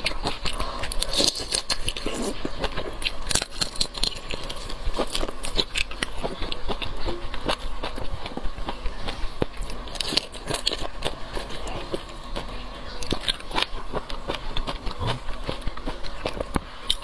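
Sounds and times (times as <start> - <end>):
shrimp being chewed: 0.0 - 17.0.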